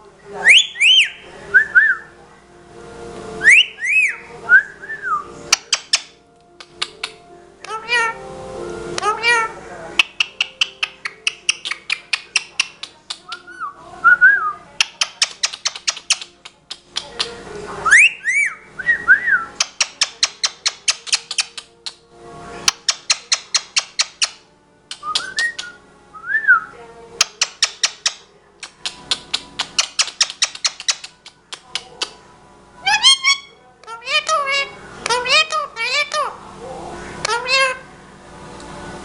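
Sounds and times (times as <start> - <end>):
parrot whistling: 0.4 - 2.1, 3.4 - 8.2, 9.0 - 12.8, 17.8 - 21.6, 22.7 - 26.7, 32.8 - 36.4.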